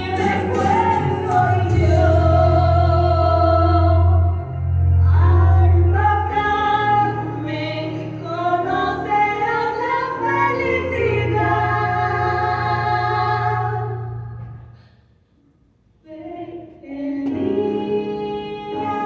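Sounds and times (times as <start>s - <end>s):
voices singing held notes: 16.1s - 19.0s.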